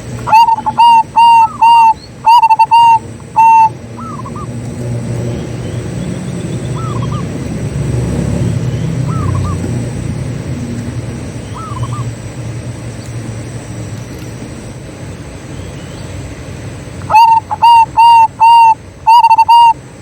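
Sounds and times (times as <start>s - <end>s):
dove cooing: 0.0s - 4.6s, 6.7s - 7.4s, 9.0s - 10.0s, 11.5s - 12.2s, 17.0s - 19.8s
faint bird call: 0.2s - 4.5s, 17.0s - 19.8s.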